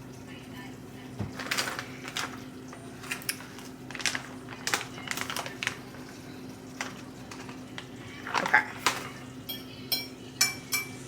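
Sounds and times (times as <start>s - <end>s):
utensil tapping dishes: 8.9s - 11.0s.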